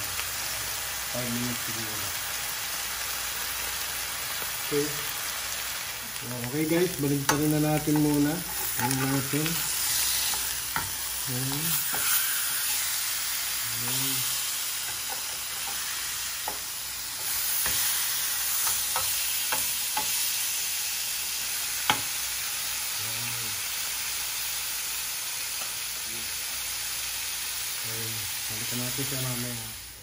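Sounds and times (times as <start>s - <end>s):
fish sizzling in grill pan: 0.0s - 30.0s
metal spoon scraping pan: 7.3s - 11.1s, 11.7s - 12.9s.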